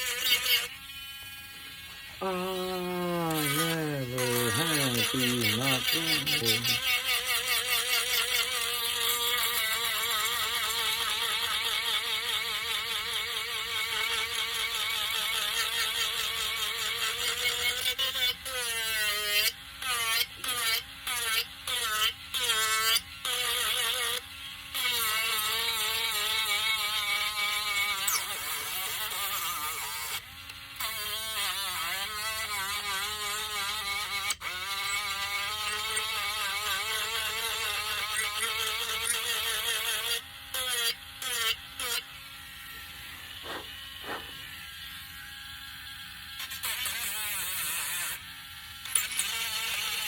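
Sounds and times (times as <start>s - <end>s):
electric sanding tool whining: 0.0s - 7.4s, 32.1s - 47.2s.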